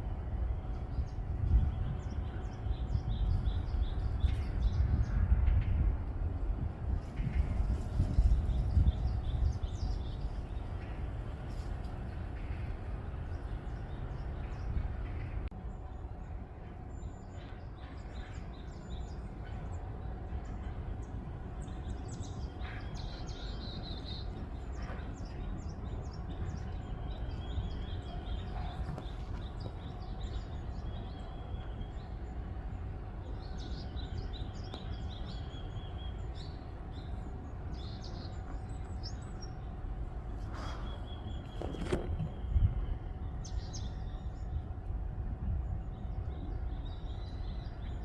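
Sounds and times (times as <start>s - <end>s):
wind on microphone: 0.0s - 15.5s, 31.8s - 48.0s
faint steady hum: 0.0s - 48.0s
small birds chirping: 0.7s - 5.2s, 7.1s - 16.3s, 16.9s - 44.6s.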